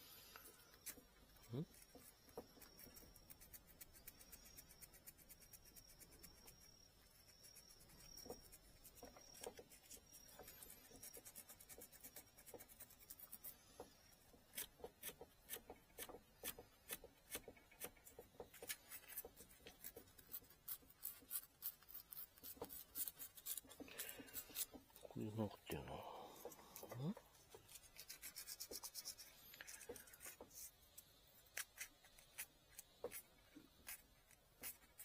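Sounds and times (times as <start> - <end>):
small blade shaving bamboo: 14.4 - 25.4, 27.6 - 30.7, 31.4 - 35.0.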